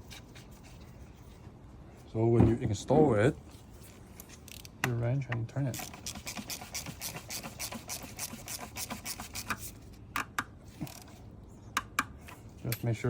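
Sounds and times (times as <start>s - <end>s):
ratchet wrench clicking: 5.7s - 9.5s.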